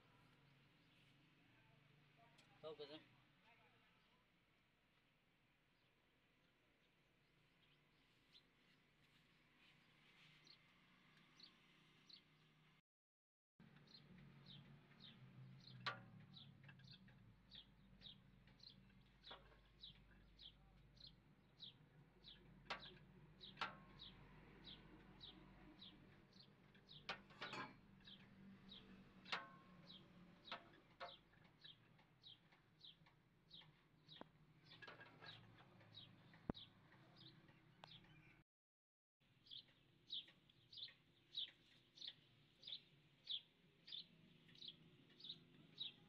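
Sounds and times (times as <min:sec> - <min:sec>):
bird chirping: 0:13.8 - 0:38.4, 0:39.4 - 0:46.0
tools tapping on metal: 0:26.8 - 0:36.6.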